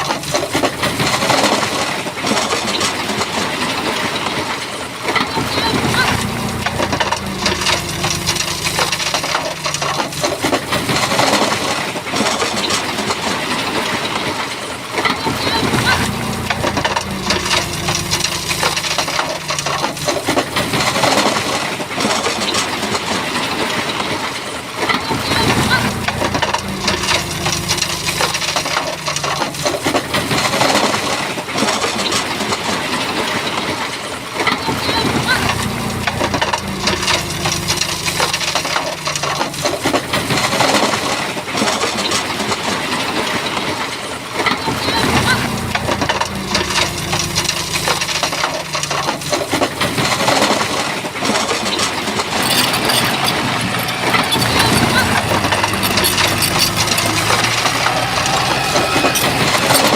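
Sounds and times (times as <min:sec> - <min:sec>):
bulldozer diesel engine: 0:00.0 - 0:59.9
stones crunching and clattering: 0:52.2 - 0:59.9.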